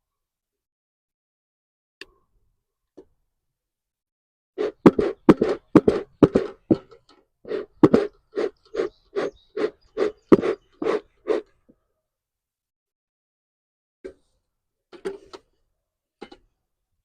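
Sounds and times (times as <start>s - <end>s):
bellows puffing: 4.6s - 6.8s, 7.5s - 11.4s.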